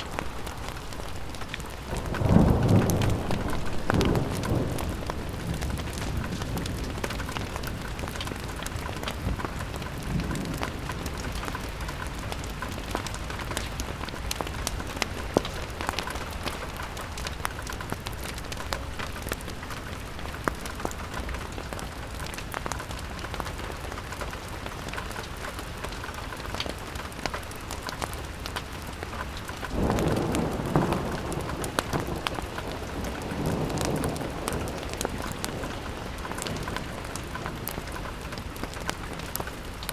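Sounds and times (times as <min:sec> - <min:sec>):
rain pattering on window: 0:00.0 - 0:39.9.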